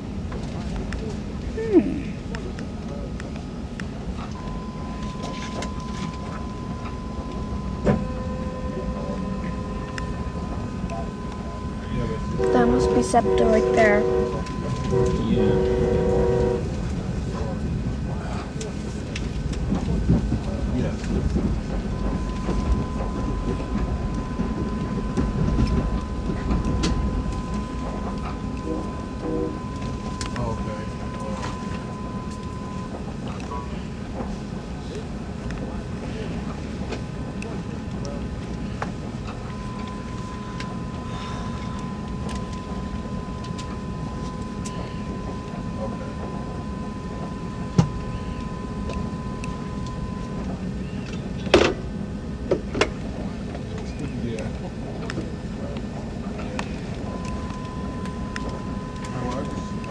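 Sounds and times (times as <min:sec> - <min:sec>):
faint high whine: 0:00.0 - 0:59.9
train car rumbling on rails: 0:00.0 - 0:59.9
faint high tone: 0:04.3 - 0:16.7, 0:21.9 - 0:34.0.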